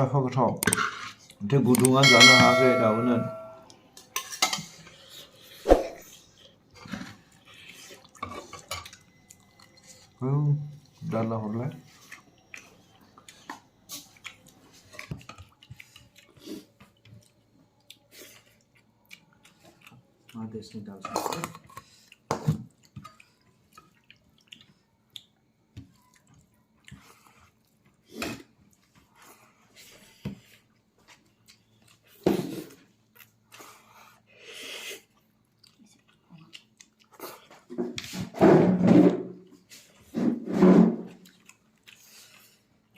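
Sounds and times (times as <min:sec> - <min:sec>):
person chewing: 0:11.8 - 0:20.5, 0:21.2 - 0:37.7, 0:41.1 - 0:42.9.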